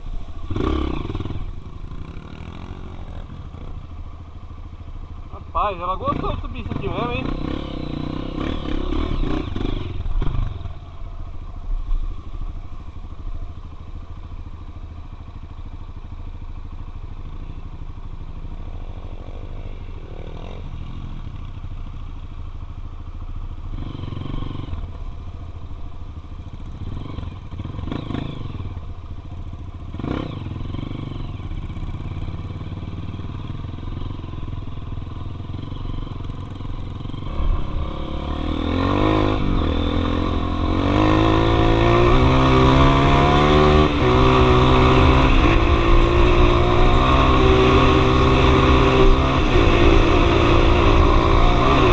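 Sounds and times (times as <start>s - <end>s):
dirt bike engine revving: 0.4s - 3.8s, 5.4s - 10.8s, 18.4s - 21.3s, 26.6s - 28.9s, 29.8s - 51.9s.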